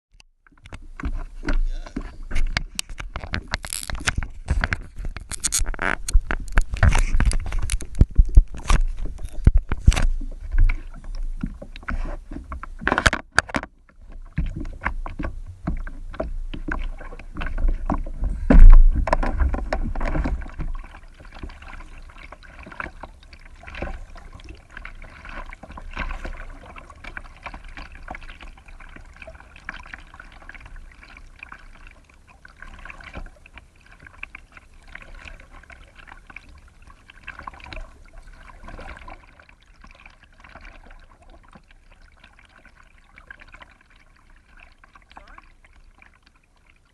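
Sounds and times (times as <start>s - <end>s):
water trickling and lapping: 0.4s - 46.9s
water splashing: 0.5s - 46.9s
paddle knocking on hull: 4.0s - 23.0s.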